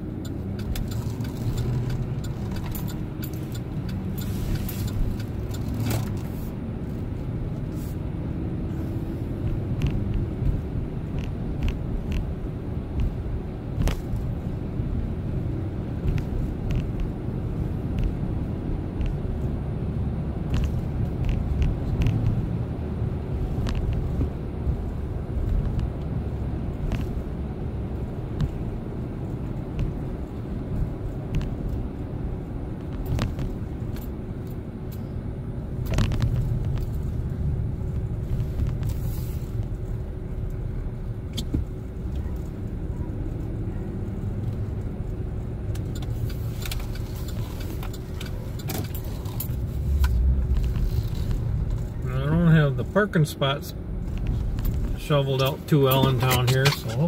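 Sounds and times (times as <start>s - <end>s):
pickup truck engine and road rumble: 0.0s - 57.0s.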